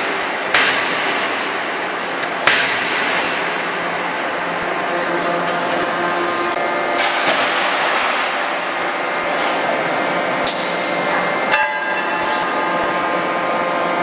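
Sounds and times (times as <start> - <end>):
forging hammer striking: 0.0 - 4.4, 11.5 - 13.0
loud steady shop noise hiss: 0.0 - 14.0
metallic ring: 11.5 - 12.8.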